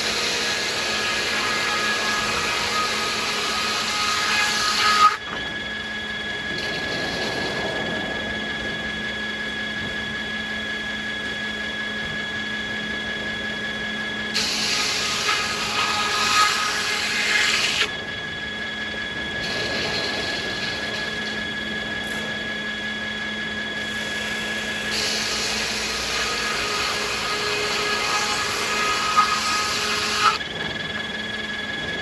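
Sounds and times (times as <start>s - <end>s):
sawmill saws cutting wood: 0.0s - 5.6s, 14.3s - 17.9s, 19.4s - 22.6s, 23.8s - 30.4s.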